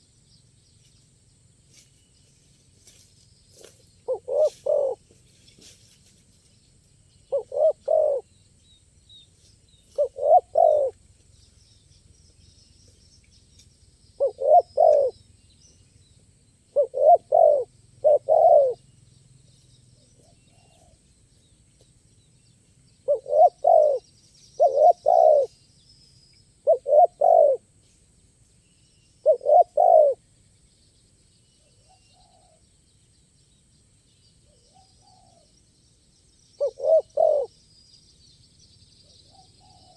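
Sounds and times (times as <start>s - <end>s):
small birds chirping: 0.0s - 39.9s
dove cooing: 4.0s - 5.0s, 7.3s - 8.3s, 9.9s - 10.9s, 14.2s - 15.2s, 16.7s - 18.8s, 23.1s - 24.0s, 24.6s - 25.5s, 26.6s - 27.6s, 29.2s - 30.2s, 36.6s - 37.5s, 39.3s - 39.9s.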